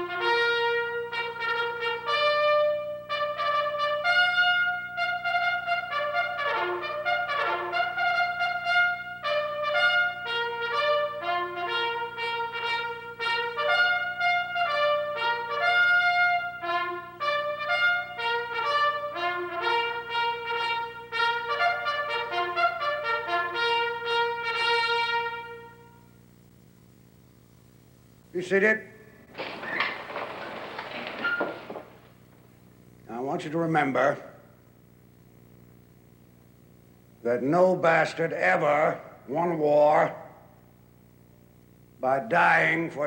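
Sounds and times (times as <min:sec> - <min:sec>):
trumpet playing a melody: 0:00.0 - 0:26.1.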